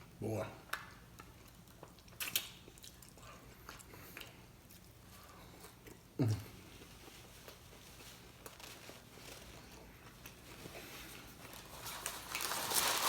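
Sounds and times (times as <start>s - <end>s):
chewing with mouth clicks: 0.7s - 6.1s
paper wrapper crinkling: 7.2s - 9.8s, 11.4s - 13.0s.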